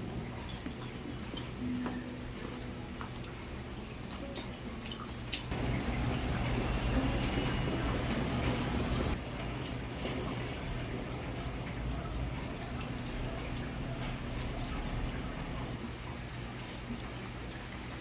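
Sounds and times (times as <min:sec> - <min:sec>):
water trickling: 0:00.0 - 0:18.0
faint low hum: 0:04.1 - 0:15.8.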